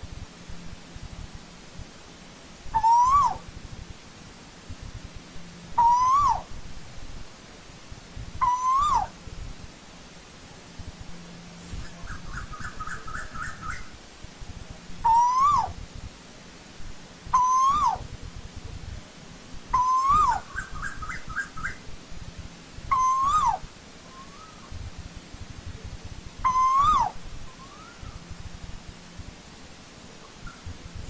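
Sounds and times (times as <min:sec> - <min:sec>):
bird two-part calls: 0:02.8 - 0:03.4, 0:05.8 - 0:06.5, 0:08.4 - 0:09.1, 0:11.8 - 0:13.9, 0:15.0 - 0:15.8, 0:17.4 - 0:18.0, 0:19.8 - 0:21.8, 0:22.9 - 0:24.7, 0:26.4 - 0:28.2, 0:30.2 - 0:30.7.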